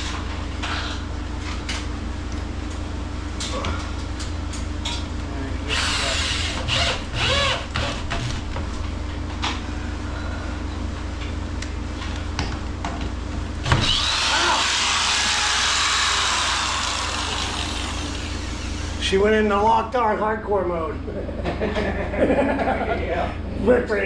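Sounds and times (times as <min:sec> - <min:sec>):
steady low hum: 0:00.0 - 0:24.0
power drill driving screw into wood: 0:05.7 - 0:08.4, 0:13.6 - 0:19.0.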